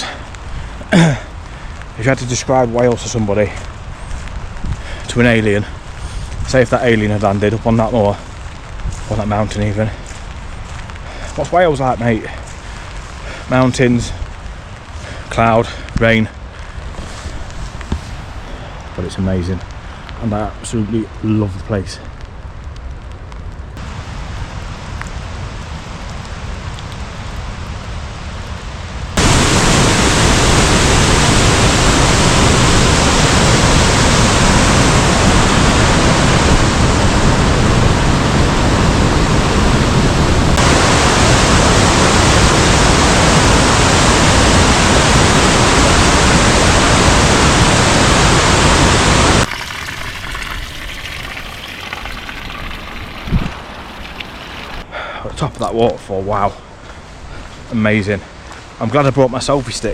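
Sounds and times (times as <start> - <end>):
waterfall roaring: 29.2 - 54.8.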